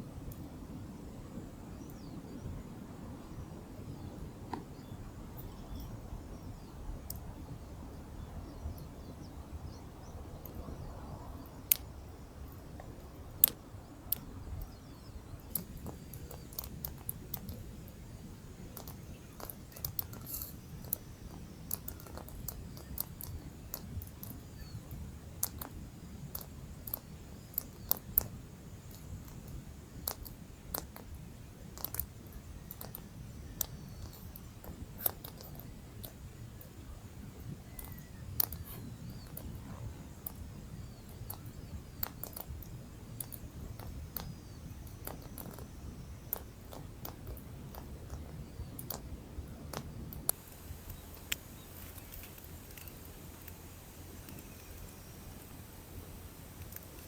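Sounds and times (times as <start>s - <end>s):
campfire crackling and popping: 15.4s - 31.2s, 37.7s - 57.0s.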